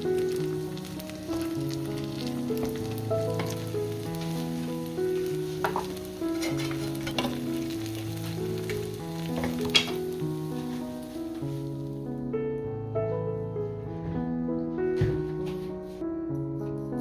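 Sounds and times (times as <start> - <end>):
food sizzling in oil: 0.0 - 12.1
background music: 0.0 - 17.0
wooden spatula scraping pan: 2.0 - 11.7.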